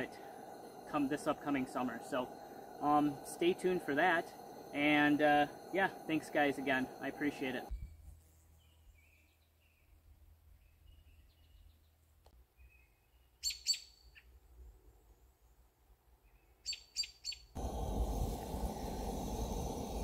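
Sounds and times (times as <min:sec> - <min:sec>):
steady rushing noise: 0:00.0 - 0:07.7, 0:17.6 - 0:20.0
songbirds chirping: 0:00.0 - 0:17.6.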